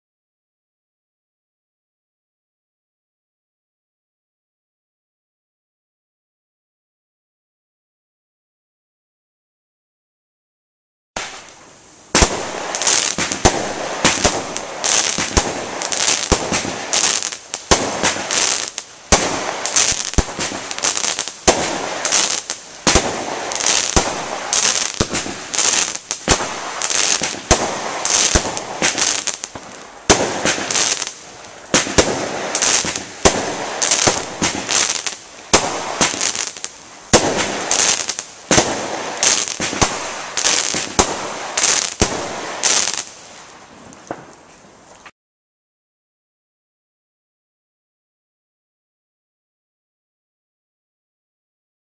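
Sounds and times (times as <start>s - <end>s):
dense firework crackling: 11.2s - 45.0s
firework shots firing: 12.1s - 43.2s.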